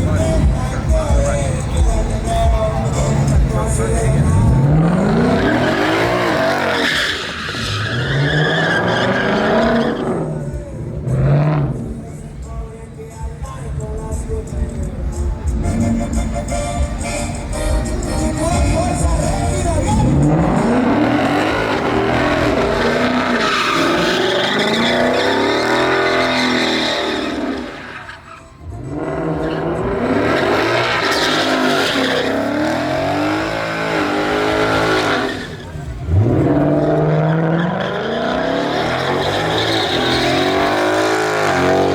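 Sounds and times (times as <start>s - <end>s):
truck engine revving: 0.0s - 41.9s
tyres squealing: 2.9s - 10.8s, 18.1s - 41.9s.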